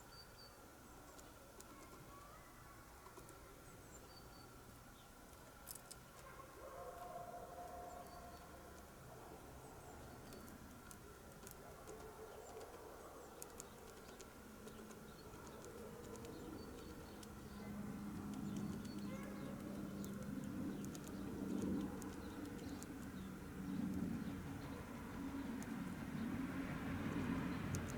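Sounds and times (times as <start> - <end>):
bird beak tapping on seed: 10.0 - 25.8, 26.6 - 27.9.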